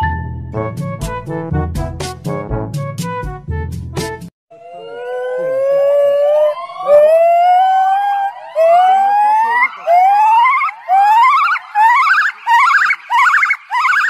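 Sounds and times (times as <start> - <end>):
gibbon hooting calls: 9.8 - 14.0.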